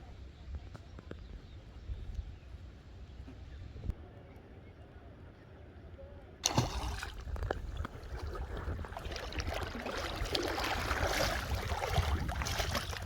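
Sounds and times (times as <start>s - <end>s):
water splashing and gurgling: 6.4s - 13.0s
wind rumble on microphone: 7.2s - 13.0s.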